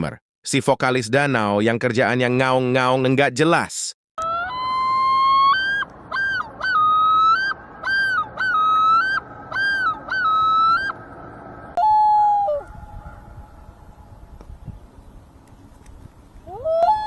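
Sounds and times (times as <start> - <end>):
loon calling: 4.2 - 11.0, 11.7 - 13.8.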